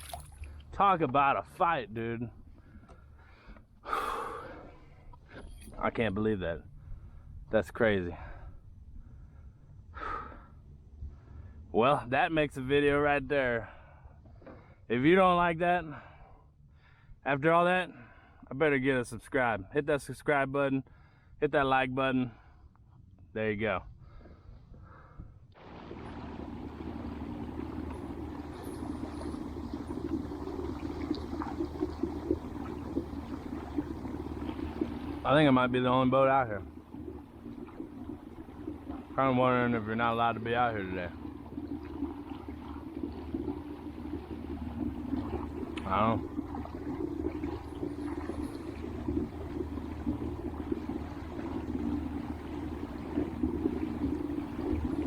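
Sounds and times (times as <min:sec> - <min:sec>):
electric motor humming: 0:25.6 - 0:55.0
water rushing along kayak hull: 0:25.6 - 0:55.0.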